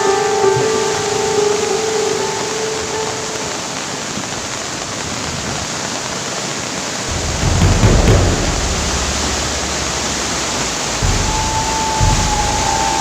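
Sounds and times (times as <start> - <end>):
river water rushing: 0.0 - 13.0
deep rumble: 7.1 - 13.0.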